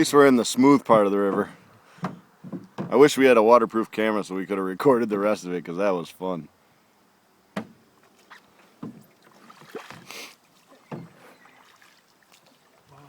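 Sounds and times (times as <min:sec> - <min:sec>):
paddles stroking through water: 0:00.0 - 0:03.2, 0:07.6 - 0:13.0
water splashes: 0:08.0 - 0:13.0.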